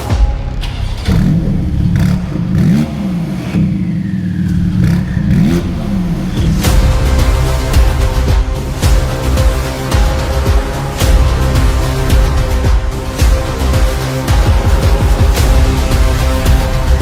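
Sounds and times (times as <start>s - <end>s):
sports car engine revving: 0.6s - 17.0s.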